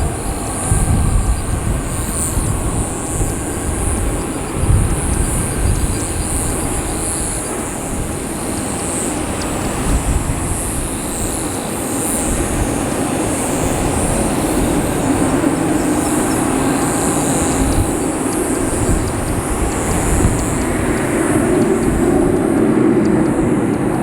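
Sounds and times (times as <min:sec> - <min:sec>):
distant jet airliner rumble: 0:00.0 - 0:24.0
wind buffeting microphone: 0:00.0 - 0:24.0.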